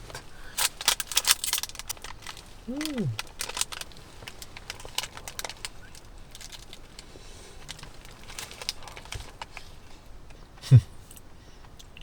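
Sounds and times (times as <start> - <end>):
plastic wrapper crackling: 0.6 - 7.0, 7.6 - 9.6.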